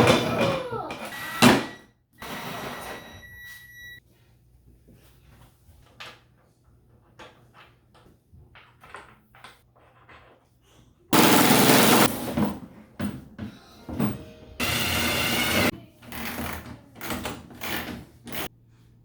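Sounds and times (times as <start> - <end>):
plastic parts clicking and knocking: 6.9 - 10.5.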